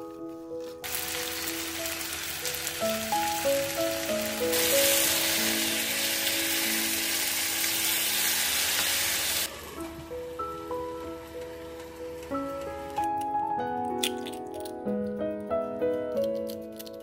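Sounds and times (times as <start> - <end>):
potatoes sizzling in oil: 0.8 - 9.5.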